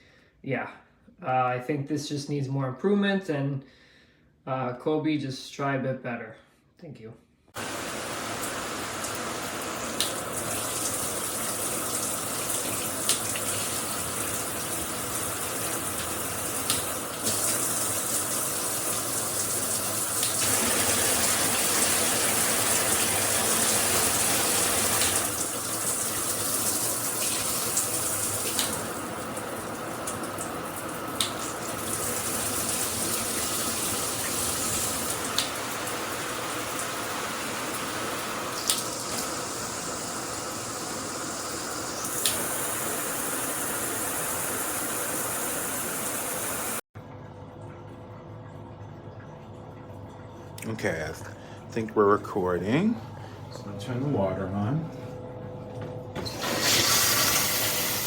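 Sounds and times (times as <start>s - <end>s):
shower head spraying water: 7.6s - 46.8s, 56.2s - 58.0s.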